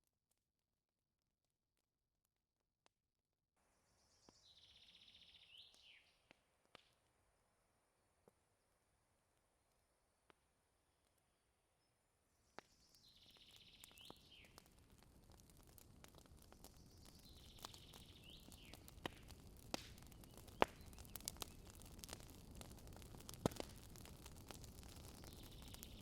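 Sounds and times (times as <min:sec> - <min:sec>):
campfire crackling: 0:05.3 - 0:11.5, 0:12.1 - 0:26.0.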